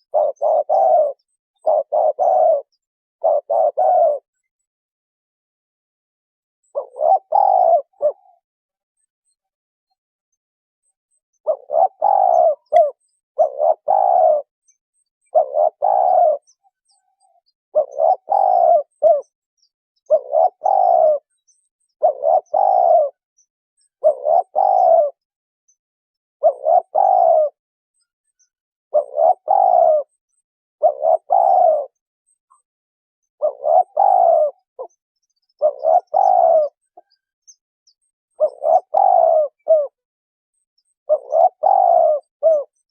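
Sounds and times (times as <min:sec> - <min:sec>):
dove cooing: 0:00.0 - 0:04.4, 0:06.6 - 0:08.4, 0:11.4 - 0:14.6, 0:15.2 - 0:19.3, 0:20.0 - 0:21.3, 0:21.9 - 0:23.2, 0:24.0 - 0:25.2, 0:26.4 - 0:27.6, 0:28.9 - 0:30.2, 0:30.8 - 0:32.0, 0:33.4 - 0:37.2, 0:37.9 - 0:40.1, 0:41.0 - 0:42.9.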